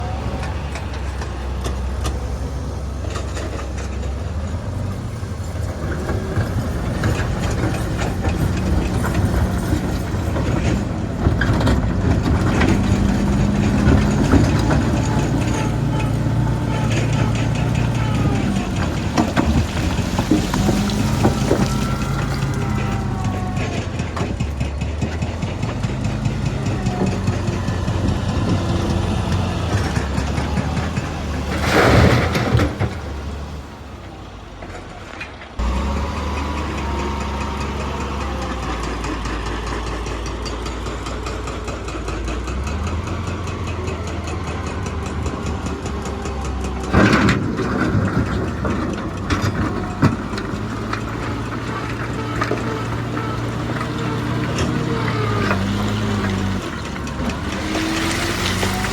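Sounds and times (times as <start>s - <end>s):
diesel machinery engine running: 0.0s - 58.9s
loud noisy crashes: 5.8s - 33.8s, 44.3s - 58.9s.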